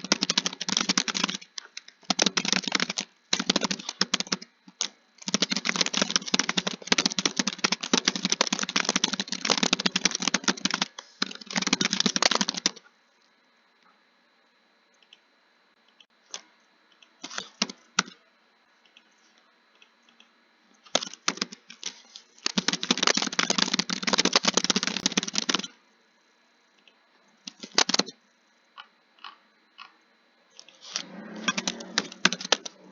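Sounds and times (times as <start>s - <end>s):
keyboard typing: 0.0s - 12.8s, 20.9s - 25.8s, 27.5s - 28.1s, 30.6s - 32.9s.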